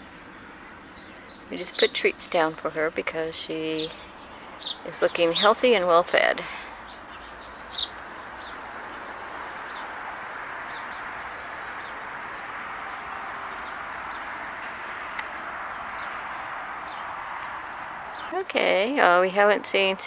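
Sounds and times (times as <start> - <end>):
steady background hiss: 0.0 - 20.0
high bird chirps: 9.6 - 17.2.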